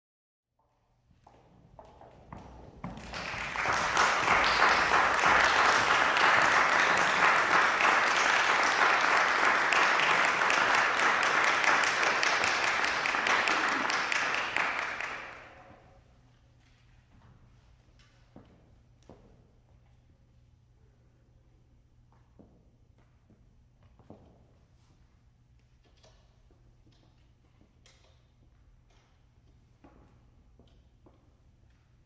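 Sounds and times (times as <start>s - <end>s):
audience applauding: 2.8s - 15.8s.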